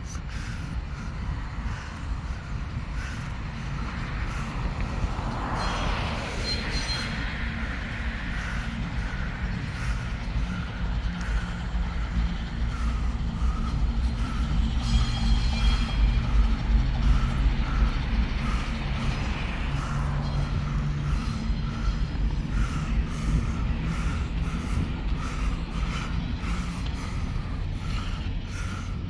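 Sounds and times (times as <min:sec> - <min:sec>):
diesel locomotive engine rumble: 0:00.0 - 0:29.0
rail noise: 0:00.0 - 0:29.0
high squeal: 0:13.6 - 0:20.2.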